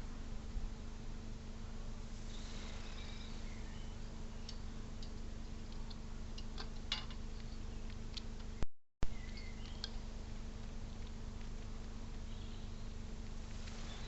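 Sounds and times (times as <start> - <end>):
steady electrical hum: 0.0 - 14.0
sharp clicks and ticks: 9.2 - 12.3.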